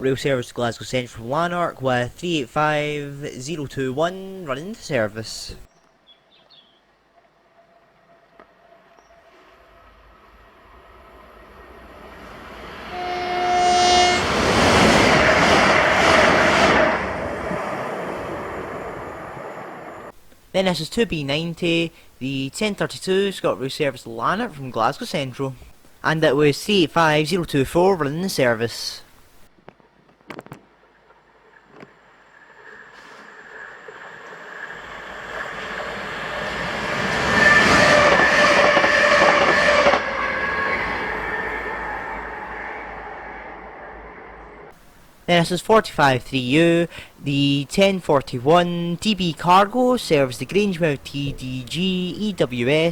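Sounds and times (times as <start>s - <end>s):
train horn: 8.5s - 17.3s, 36.4s - 44.7s
train rushing past: 9.3s - 20.1s, 32.7s - 44.7s.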